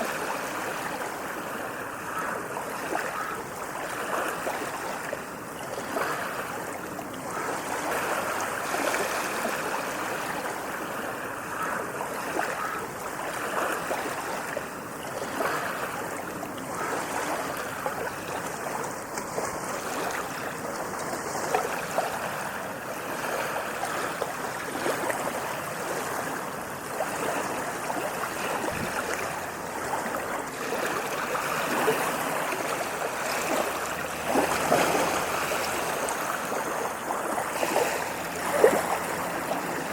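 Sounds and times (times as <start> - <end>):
ocean waves on a beach: 0.0 - 39.9.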